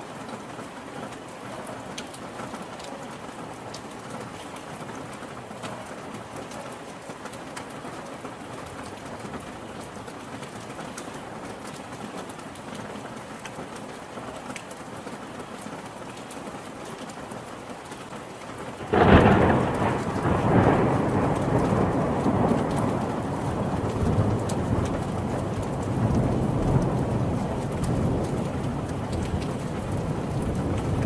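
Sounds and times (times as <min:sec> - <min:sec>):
steady rain falling: 0:00.0 - 0:31.0
thunder clap and rumble: 0:18.8 - 0:31.0.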